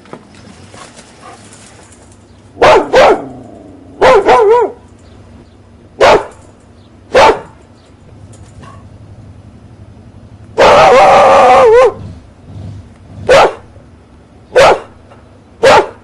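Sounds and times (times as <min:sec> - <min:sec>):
dog barking: 0:02.6 - 0:03.4, 0:04.0 - 0:04.9, 0:06.0 - 0:06.4, 0:07.1 - 0:07.6, 0:10.6 - 0:12.1, 0:13.3 - 0:13.7, 0:14.5 - 0:15.0, 0:15.6 - 0:16.0
dog yelping: 0:02.6 - 0:03.4, 0:04.0 - 0:04.8, 0:10.6 - 0:12.1, 0:13.3 - 0:13.6, 0:14.5 - 0:14.9, 0:15.6 - 0:16.0.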